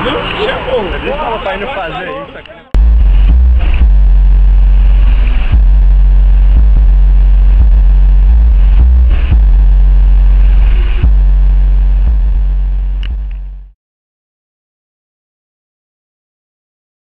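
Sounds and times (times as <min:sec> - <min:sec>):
bass-heavy music from subwoofers: 0:02.8 - 0:13.8.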